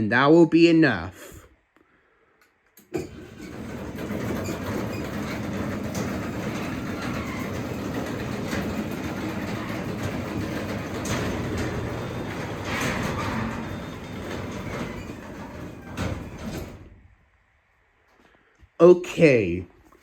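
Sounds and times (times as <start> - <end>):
garage door opener click: 2.8 - 17.0
garage door opener motor humming: 2.8 - 17.1
garage door rolling down: 2.8 - 17.2.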